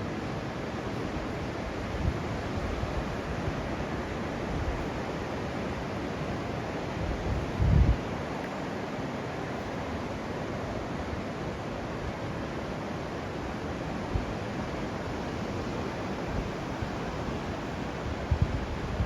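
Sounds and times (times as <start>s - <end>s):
sea waves washing on beach: 0.0s - 19.0s
wind buffeting microphone: 1.2s - 8.2s, 14.0s - 19.0s.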